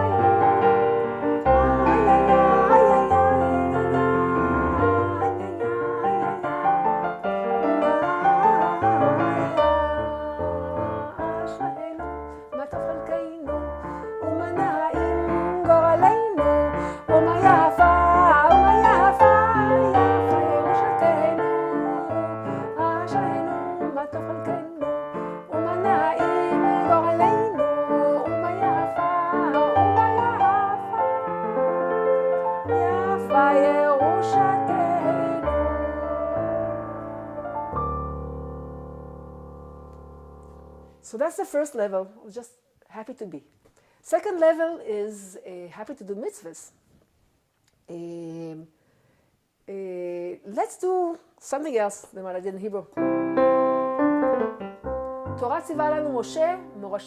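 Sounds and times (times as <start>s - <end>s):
slow keyboard melody with chords: 35.5s - 41.0s, 53.0s - 55.4s.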